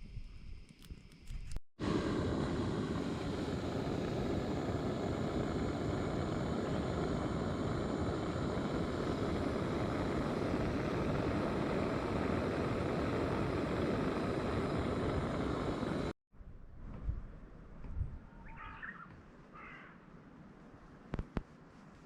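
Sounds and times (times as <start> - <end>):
steady rushing noise: 1.8 - 16.1.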